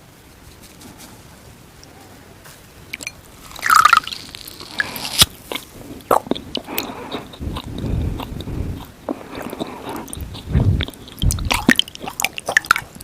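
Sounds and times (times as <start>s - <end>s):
wet sponge being chewed: 3.4s - 13.0s.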